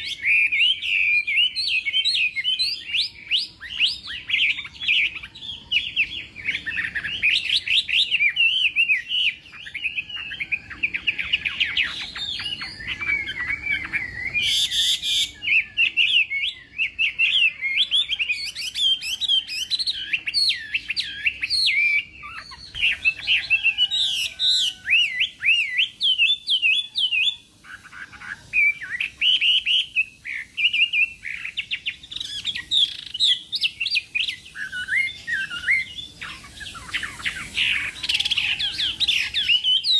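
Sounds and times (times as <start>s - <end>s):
bird warbling song: 0.0s - 39.9s.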